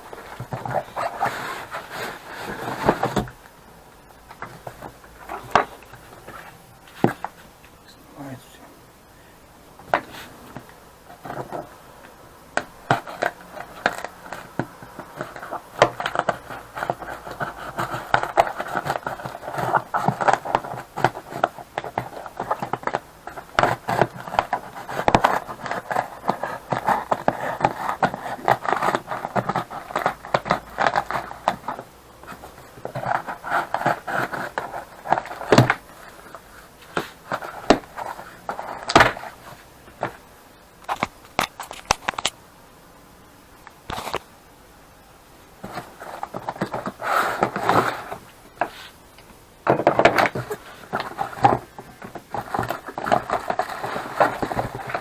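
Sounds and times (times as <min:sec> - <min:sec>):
scraping and rustling: 0:00.0 - 0:03.5, 0:04.2 - 0:07.6, 0:09.8 - 0:11.8, 0:12.5 - 0:42.4, 0:45.6 - 0:55.0
small clicks and knocks: 0:40.8 - 0:42.4.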